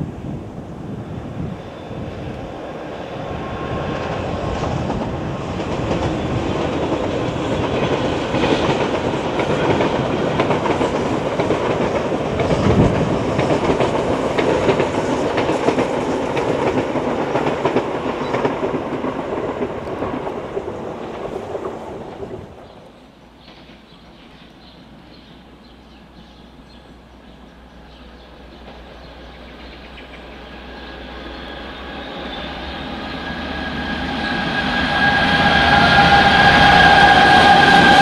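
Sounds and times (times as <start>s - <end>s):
train rail rumble: 0.0s - 38.0s
wheels clacking over rail joints: 3.9s - 24.8s.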